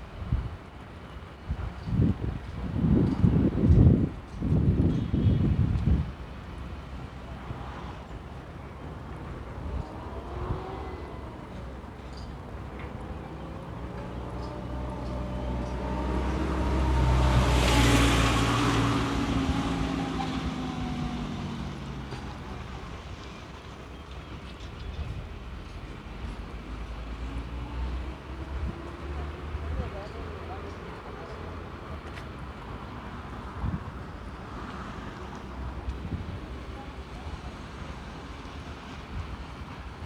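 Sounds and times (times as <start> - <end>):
vehicle passing by: 9.2 - 23.4.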